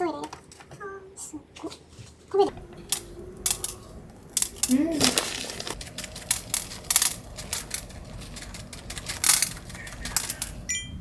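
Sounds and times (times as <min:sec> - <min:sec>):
kitchen items clicking and clattering: 0:02.5 - 0:11.0.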